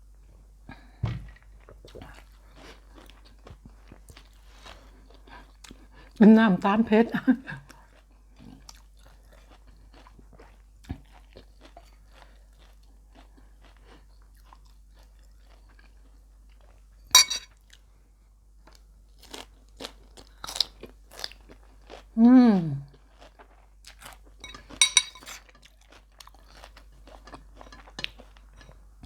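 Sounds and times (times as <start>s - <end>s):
close chewing: 7.6s - 16.8s, 22.8s - 28.5s.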